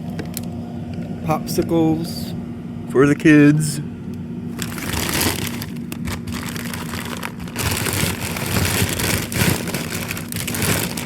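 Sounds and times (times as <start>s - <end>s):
steady low hum: 0.0s - 11.0s
frozen food packages rustling: 4.5s - 11.0s.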